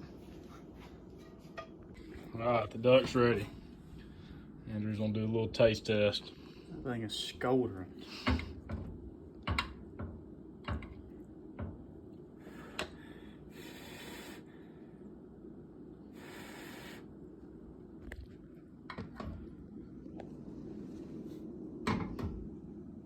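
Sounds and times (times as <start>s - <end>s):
low background hum: 0.0s - 23.0s
short breathy hisses: 13.5s - 14.5s, 16.2s - 17.1s.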